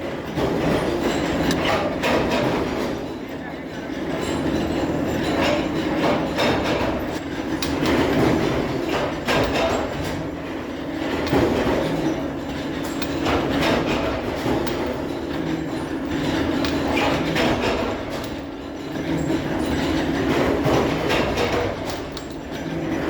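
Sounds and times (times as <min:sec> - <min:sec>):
factory machinery humming: 0:00.0 - 0:23.0
sharp metal clanks and knocks: 0:00.1 - 0:23.0.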